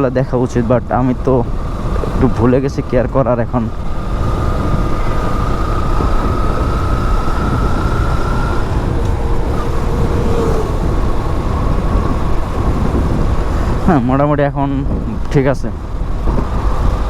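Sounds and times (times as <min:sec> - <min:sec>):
road noise: 0:00.0 - 0:17.0
wind rumble on microphone: 0:00.0 - 0:17.0
motorcycle engine running: 0:00.8 - 0:13.9.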